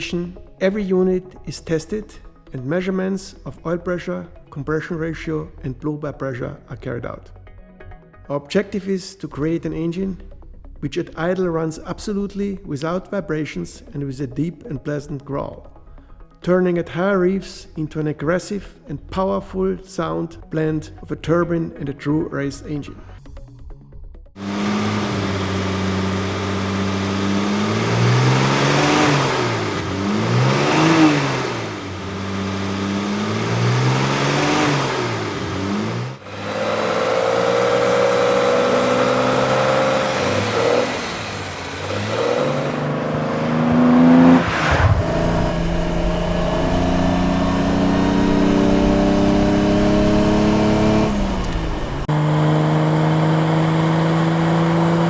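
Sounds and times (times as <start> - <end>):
car engine accelerating under load: 24.4 - 55.0
car engine idling and revving: 24.4 - 55.0.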